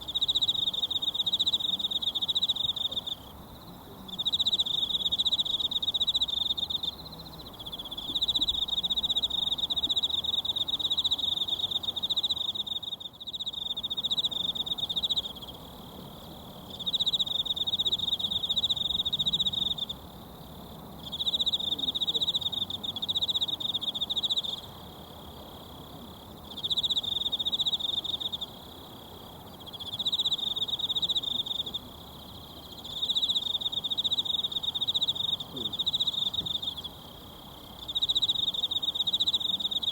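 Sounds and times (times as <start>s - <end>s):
insect trilling: 26.5s - 39.9s.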